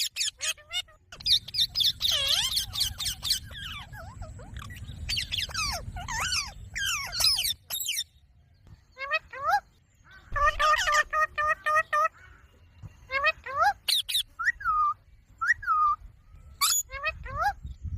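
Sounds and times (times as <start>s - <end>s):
parrot chattering and squawking: 0.0s - 8.1s, 9.0s - 12.2s, 13.1s - 14.9s, 16.6s - 17.6s.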